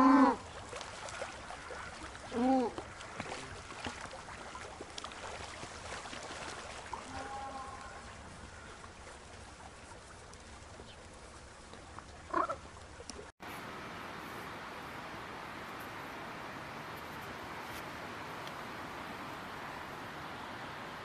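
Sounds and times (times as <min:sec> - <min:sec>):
steady hiss: 0:13.4 - 0:21.0
waves washing onto beach: 0:13.4 - 0:21.0.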